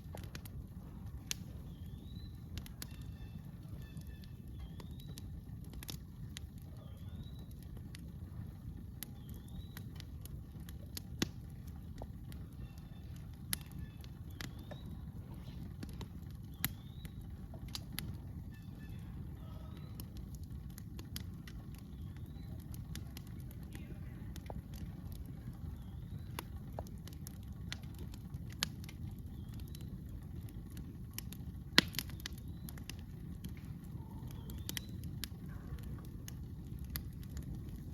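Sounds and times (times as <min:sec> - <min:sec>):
campfire crackling and popping: 0:00.0 - 0:37.9
low rumble: 0:00.0 - 0:37.9
bird chirping: 0:12.4 - 0:15.5, 0:16.4 - 0:17.4.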